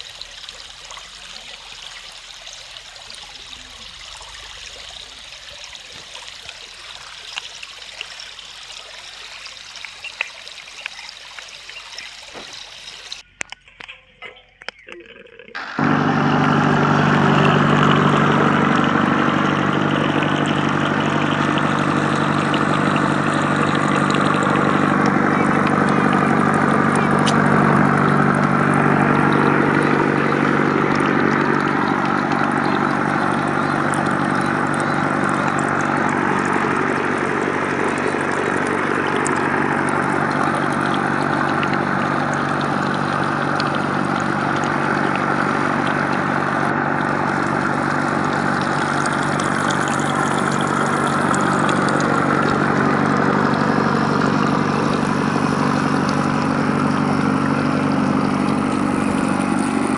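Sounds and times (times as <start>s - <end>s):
small motor humming: 15.6s - 59.9s.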